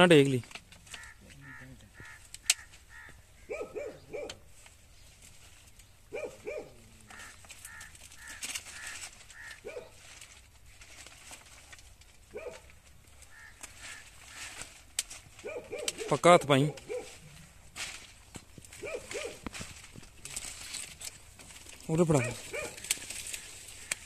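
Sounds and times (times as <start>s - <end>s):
loud bird calls: 0.8s - 5.2s, 5.8s - 10.0s, 12.4s - 14.8s, 22.0s - 24.0s.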